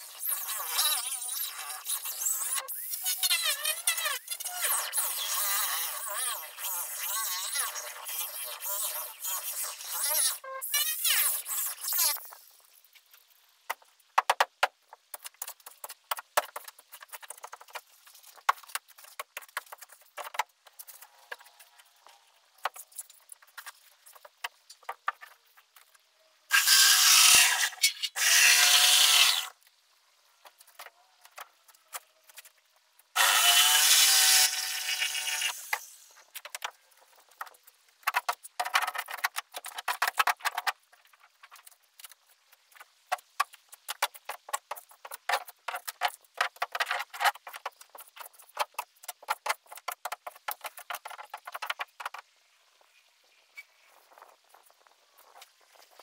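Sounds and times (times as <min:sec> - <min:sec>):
knocks and scrapes: 0:11.2 - 0:26.0, 0:35.6 - 0:53.0
power tool cutting: 0:26.5 - 0:29.5, 0:33.2 - 0:36.0.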